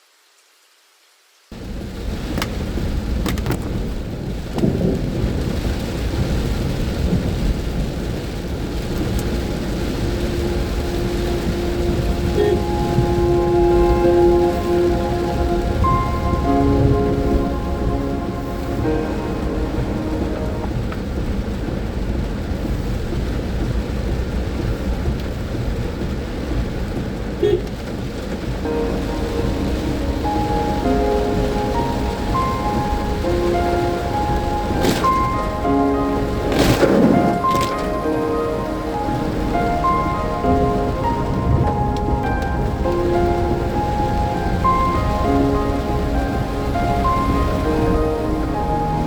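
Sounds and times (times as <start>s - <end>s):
heavy rain with deep rumble: 0.0s - 49.0s
steady musical tone: 8.8s - 22.0s, 28.6s - 49.0s.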